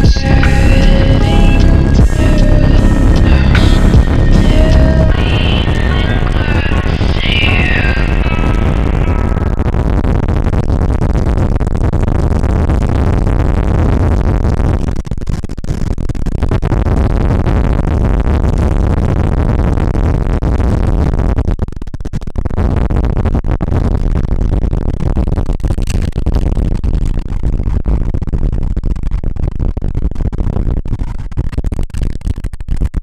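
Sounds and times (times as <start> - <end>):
wind rushing on microphone: 0.0 - 10.4.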